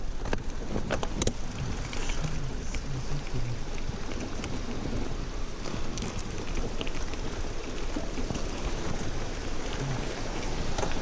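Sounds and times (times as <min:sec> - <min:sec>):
rushing mountain stream: 0:00.0 - 0:11.0
faint ticks: 0:00.2 - 0:05.0.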